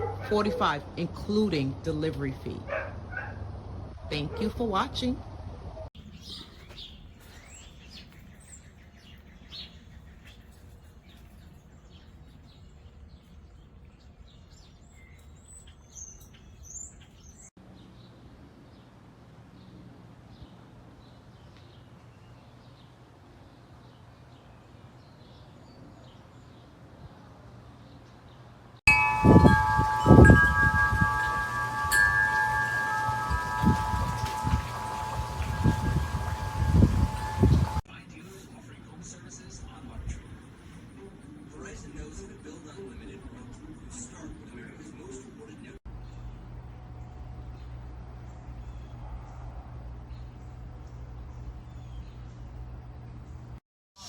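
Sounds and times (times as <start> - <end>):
birds chirping: 6.0 - 18.1, 28.9 - 37.8
low rumbling: 28.9 - 37.8
wind chimes ringing: 28.9 - 37.8.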